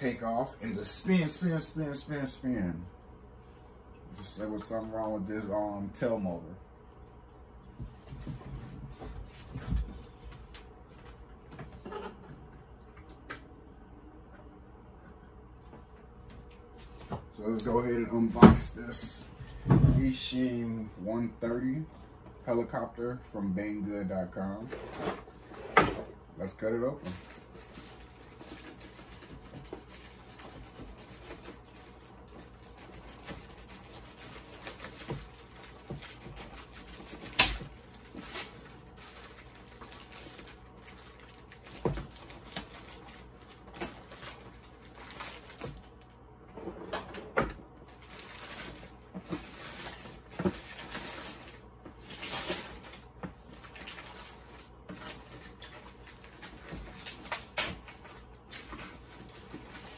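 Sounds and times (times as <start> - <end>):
packaging rustling and scraping: 27.0 - 46.8, 47.8 - 59.9.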